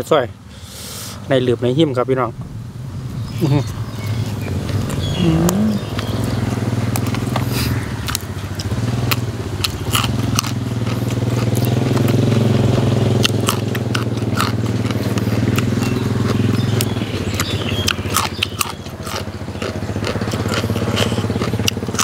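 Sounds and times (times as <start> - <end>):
low motor hum: 1.4 - 22.0
crunchy chewing of raw vegetables: 3.2 - 22.0.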